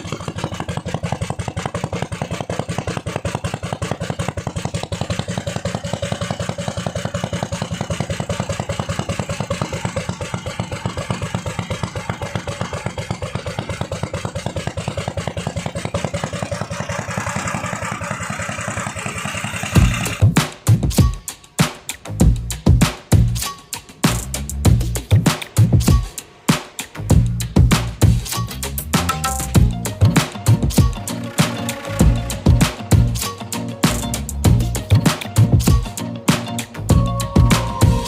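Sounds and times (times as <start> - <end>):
boat engine running steadily: 0.0 - 20.4, 29.1 - 38.0
music: 19.8 - 38.0.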